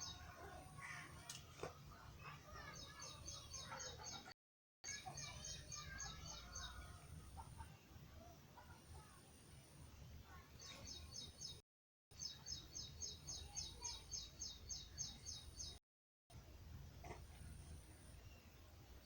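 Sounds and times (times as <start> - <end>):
small bird chirping: 4.9 - 7.1, 12.2 - 15.8.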